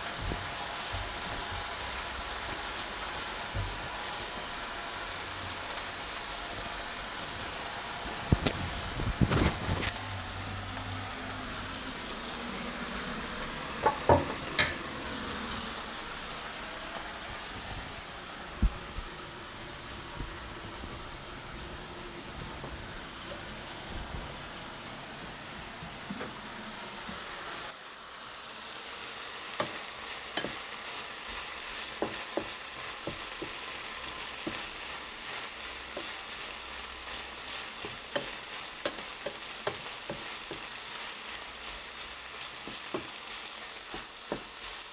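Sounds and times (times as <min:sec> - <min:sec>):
food sizzling in a frying pan: 0:00.0 - 0:44.9
sharp knocks on a pan: 0:13.8 - 0:14.8.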